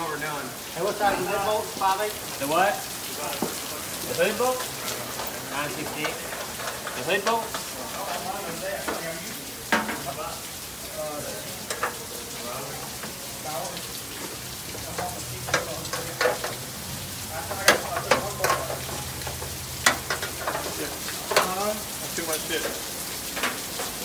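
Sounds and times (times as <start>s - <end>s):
metal clanks and clicks: 4.6s - 8.2s, 11.6s - 12.0s, 14.9s - 16.7s, 17.6s - 21.7s.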